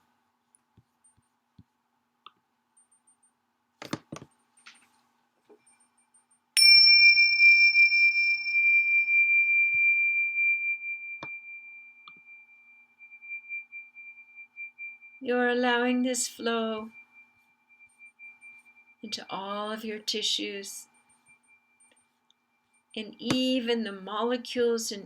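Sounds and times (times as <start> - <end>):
metal chime ringing: 6.6 - 20.0.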